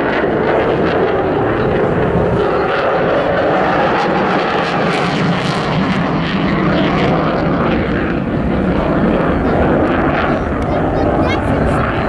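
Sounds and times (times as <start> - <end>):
aircraft engine roar: 0.0 - 12.0.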